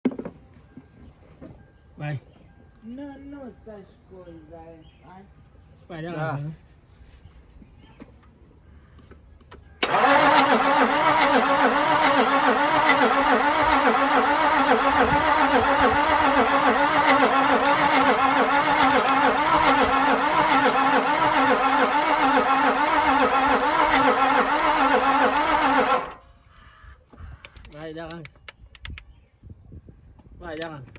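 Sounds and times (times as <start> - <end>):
starter motor cranking engine: 9.8 - 26.3.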